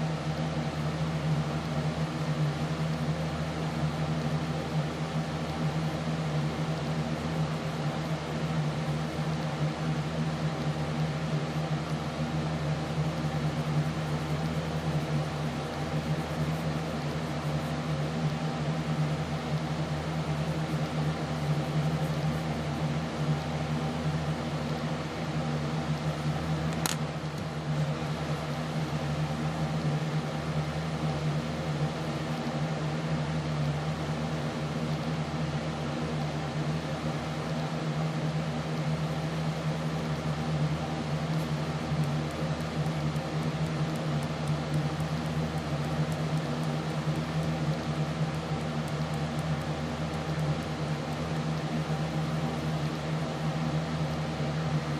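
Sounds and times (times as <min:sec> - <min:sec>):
machine hum: 0:00.0 - 0:54.9
sharp click: 0:26.7 - 0:27.5.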